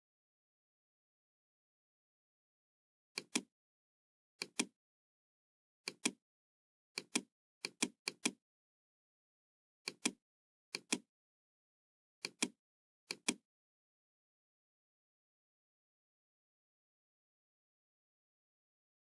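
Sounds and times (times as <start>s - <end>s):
computer mouse clicks: 3.2s - 3.5s, 4.4s - 4.7s, 5.9s - 6.2s, 7.0s - 8.4s, 9.9s - 11.1s, 12.2s - 13.4s.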